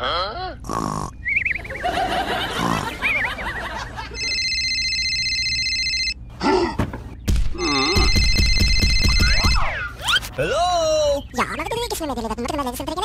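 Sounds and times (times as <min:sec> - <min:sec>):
telephone ringing: 0:04.0 - 0:06.2, 0:07.6 - 0:09.6.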